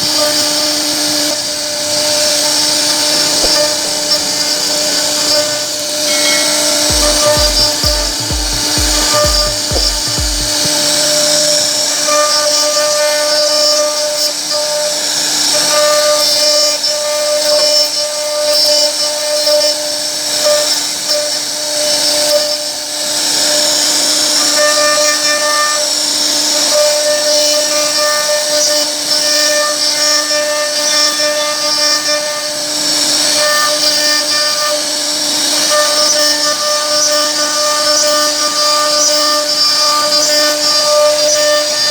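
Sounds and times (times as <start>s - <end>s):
bit cutting wood: 0.0s - 41.9s
router spindle whining: 0.0s - 41.9s.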